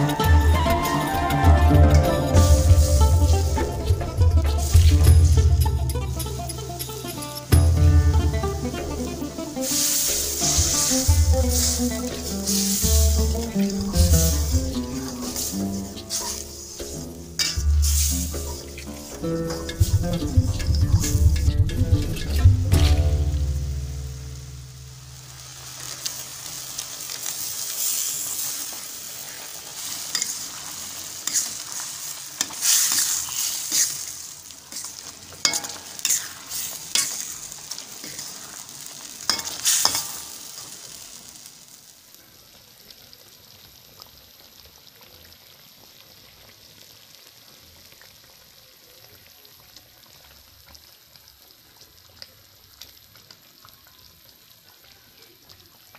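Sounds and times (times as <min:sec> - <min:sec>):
utensil scraping and knocking wok: 0:00.0 - 0:40.8
food sizzling in a wok: 0:00.0 - 0:55.9.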